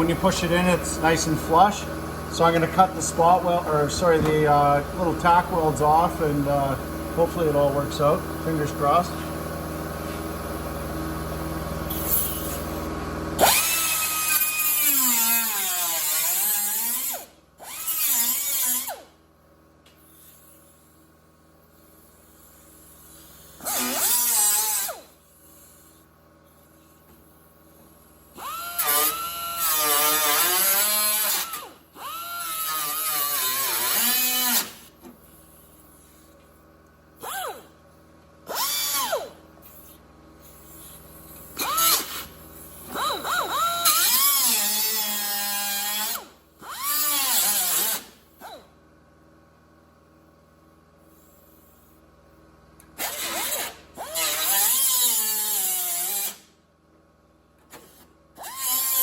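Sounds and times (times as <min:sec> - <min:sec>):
cut-off tool cutting metal: 0:13.4 - 0:19.0, 0:28.4 - 0:34.8, 0:42.9 - 0:48.2, 0:53.0 - 0:56.4.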